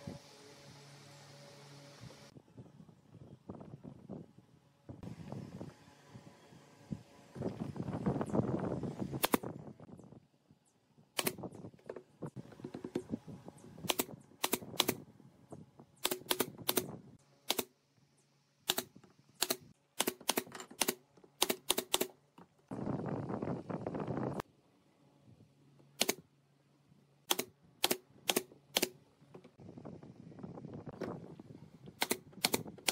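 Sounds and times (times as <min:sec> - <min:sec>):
nail gun shots: 0:16.0 - 0:17.7, 0:27.3 - 0:29.0, 0:32.0 - 0:32.9.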